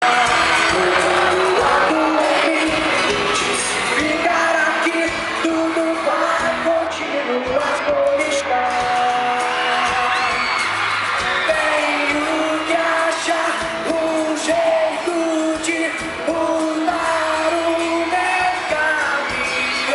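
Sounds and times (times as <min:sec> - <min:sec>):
live pop band with singing: 0:00.0 - 0:19.9.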